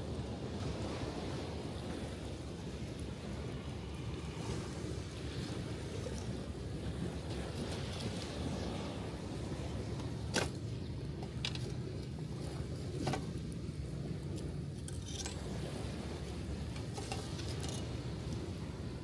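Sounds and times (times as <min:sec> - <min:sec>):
gentle surf: 0:00.0 - 0:19.0.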